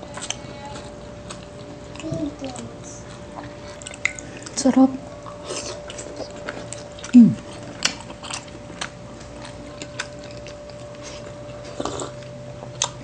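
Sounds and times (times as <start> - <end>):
chewing and wet mouth clicks: 1.3 - 4.6
person humming mm: 7.1 - 7.4.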